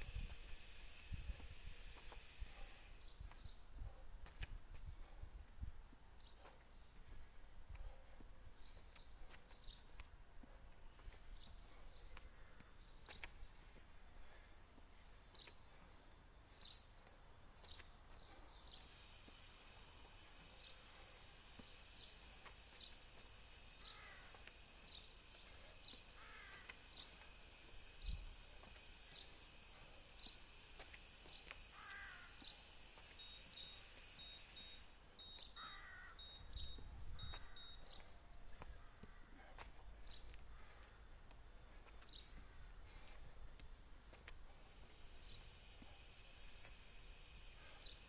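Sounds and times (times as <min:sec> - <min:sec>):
steady high hiss: 0:00.0 - 0:03.6, 0:09.3 - 0:48.0
lower bird chirping: 0:11.0 - 0:41.0, 0:44.6 - 0:48.0.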